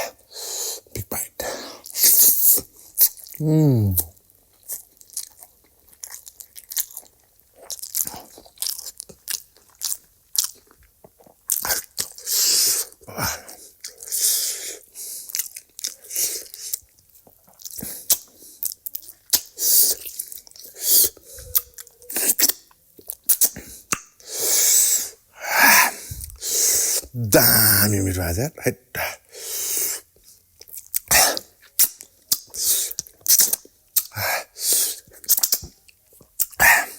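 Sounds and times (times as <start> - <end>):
chewing and crunching: 1.0 - 3.4, 4.0 - 24.3, 29.6 - 36.9
wet mouth clicks: 19.3 - 20.2, 20.9 - 25.0, 30.7 - 35.8.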